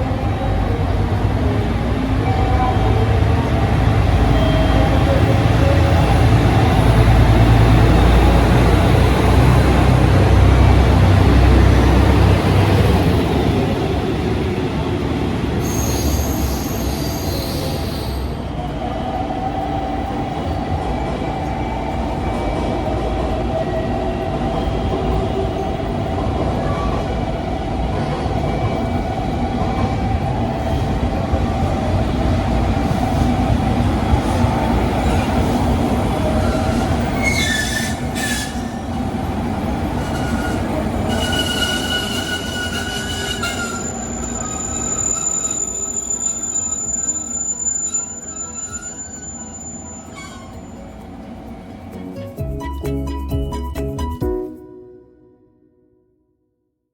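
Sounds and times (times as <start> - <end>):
train rumbling on rails: 0.0 - 54.2
train whine: 0.0 - 55.6
high-pitched wheel squeal: 15.6 - 18.4, 36.4 - 38.9, 39.9 - 51.0.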